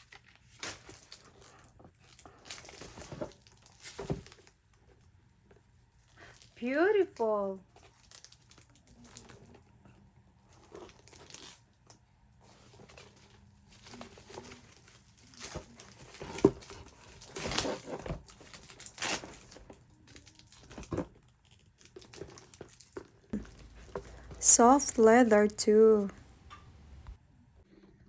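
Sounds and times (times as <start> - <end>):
packaging wrap crinkling: 7.8 - 9.6, 10.5 - 24.4.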